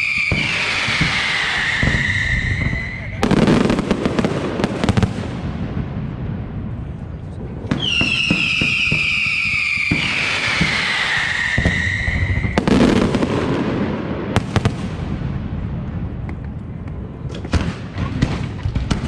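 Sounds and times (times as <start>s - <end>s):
falling whistle: 0.0s - 3.1s, 7.8s - 12.6s
fireworks crackling and bangs: 0.0s - 19.0s.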